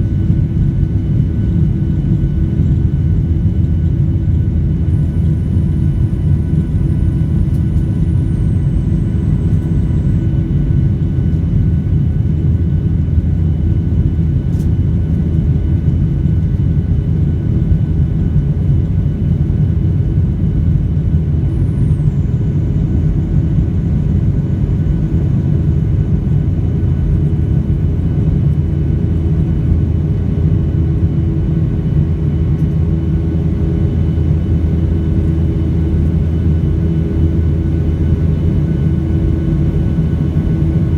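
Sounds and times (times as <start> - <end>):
aircraft cabin engine rumble: 0.0 - 40.9
faint high whine: 4.3 - 12.3, 21.2 - 40.9.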